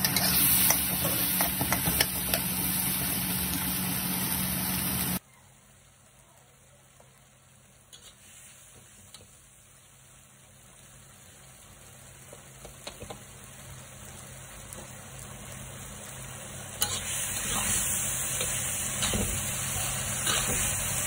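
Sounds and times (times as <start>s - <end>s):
metal spatula scraping a wok: 0.0s - 2.5s, 7.9s - 8.3s, 16.8s - 21.0s
sauce sizzling in a wok: 0.0s - 21.0s.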